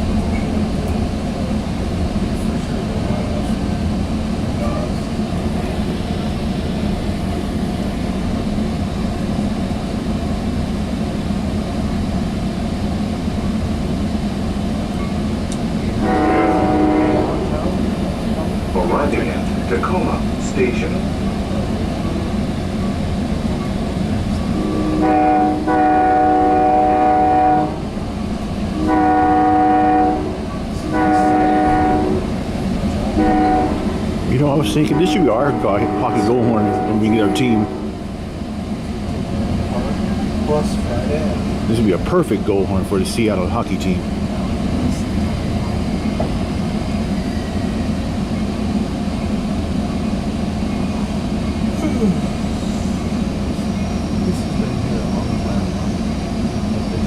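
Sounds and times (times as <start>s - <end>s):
moving train rumble: 0.0s - 57.0s
train horn blowing: 15.9s - 17.8s, 24.5s - 28.0s, 28.7s - 32.4s, 33.0s - 38.1s.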